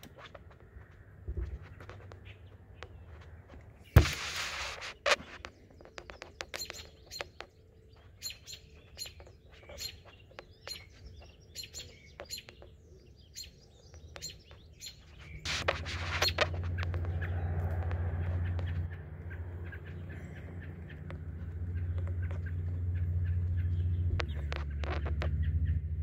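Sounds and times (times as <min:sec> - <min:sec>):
handling rustle: 0:00.0 - 0:06.8, 0:15.1 - 0:17.2
loud thump: 0:04.0 - 0:04.4
high bird chirps: 0:04.9 - 0:26.0.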